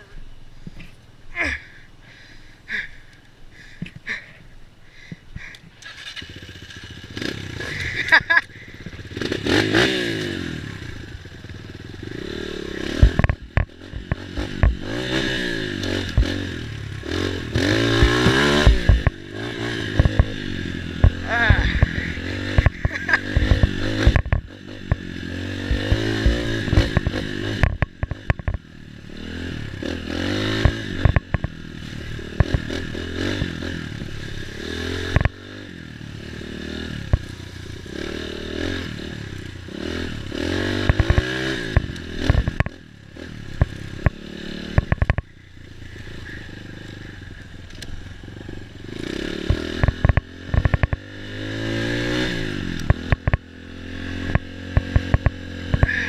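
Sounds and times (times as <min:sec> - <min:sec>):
dirt bike engine revving: 0:05.8 - 0:56.0
sharp knocks and clatters: 0:13.0 - 0:14.9, 0:22.5 - 0:25.0.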